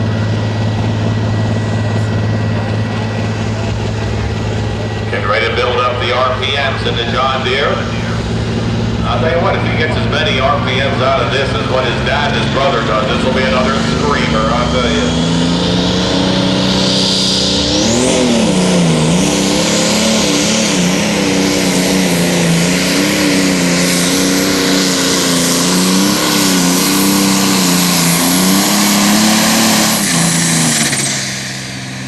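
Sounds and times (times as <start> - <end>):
high turbo whine: 0.0 - 32.0
tractor diesel engine revving: 0.0 - 32.0.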